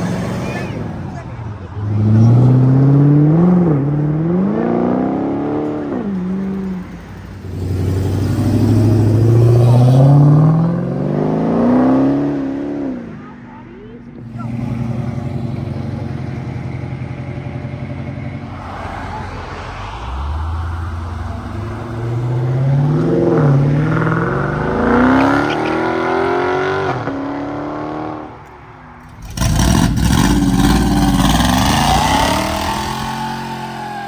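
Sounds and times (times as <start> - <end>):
car engine idling and revving: 0.0 - 34.0
loud exhaust blast: 17.4 - 26.6, 29.1 - 34.0.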